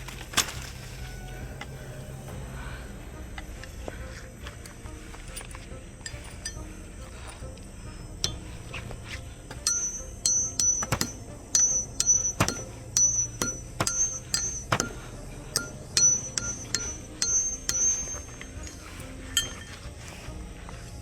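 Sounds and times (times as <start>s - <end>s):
hard objects clinking: 4.5s - 7.6s, 8.2s - 20.3s.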